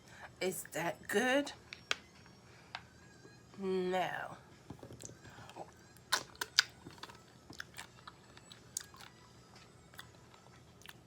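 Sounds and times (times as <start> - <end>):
chewing: 4.9 - 11.0.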